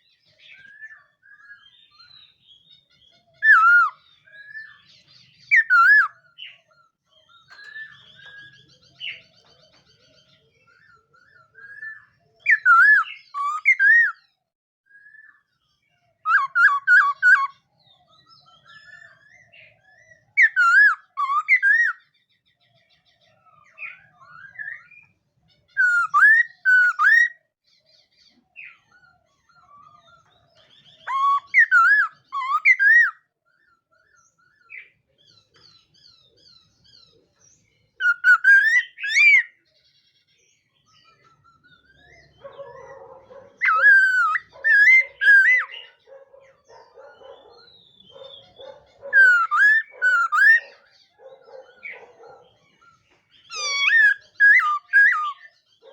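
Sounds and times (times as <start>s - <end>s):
bird singing whistled phrases: 0.0s - 4.9s, 5.5s - 6.6s, 10.7s - 14.2s, 16.2s - 17.6s, 18.5s - 22.1s, 25.8s - 27.4s, 30.2s - 33.2s, 38.0s - 39.6s, 41.0s - 46.0s, 47.3s - 50.8s, 53.4s - 55.6s.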